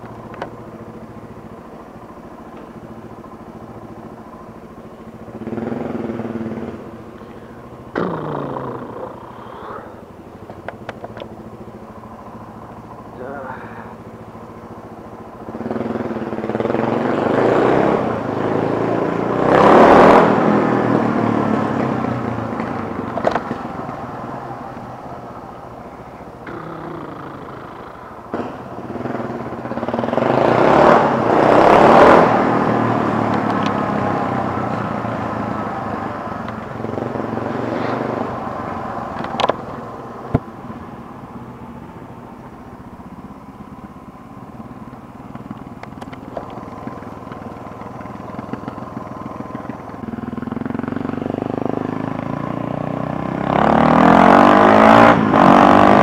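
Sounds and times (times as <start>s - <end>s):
motorcycle engine revving: 0.0s - 56.0s
sharp clicks: 45.3s - 46.6s.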